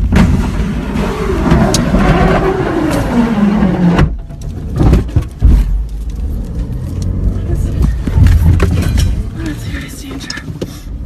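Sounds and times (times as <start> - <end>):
car interior low rumble: 0.0 - 11.0.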